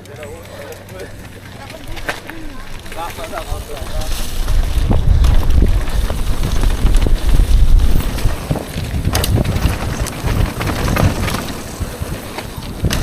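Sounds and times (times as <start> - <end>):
wind buffeting microphone: 0.3 - 13.0
knocks and rattles: 4.6 - 13.0.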